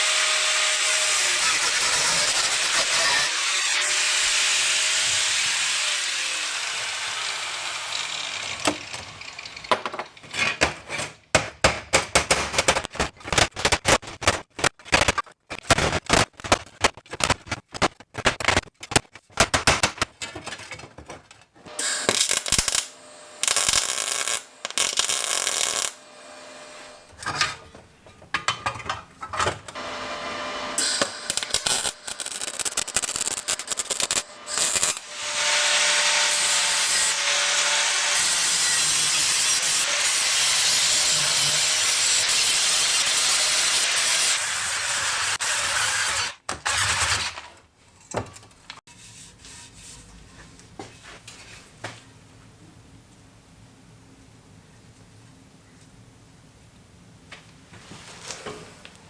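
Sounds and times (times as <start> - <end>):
steady noisy tool sound: 0.0 - 9.8, 21.7 - 27.2, 29.8 - 47.1
tool scraping and rubbing: 48.9 - 50.5.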